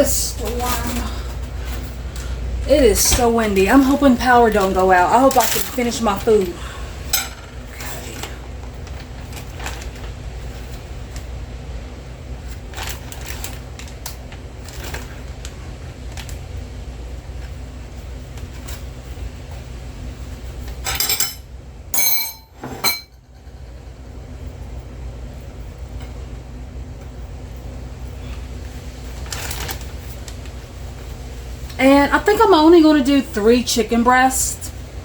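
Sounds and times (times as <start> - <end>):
steady low hum: 0.0 - 35.0
dishes clattering: 20.9 - 21.4, 22.0 - 23.2
dishes and utensils clinking: 20.9 - 23.2.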